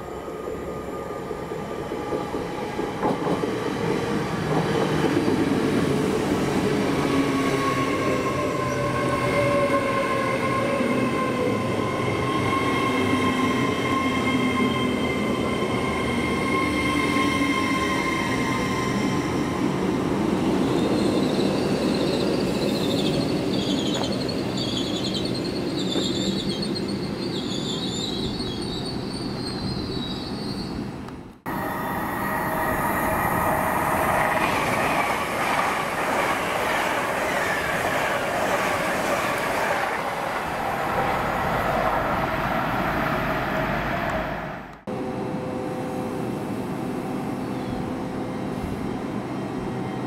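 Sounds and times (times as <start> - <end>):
high wavering wheel squeal: 20.6 - 30.8.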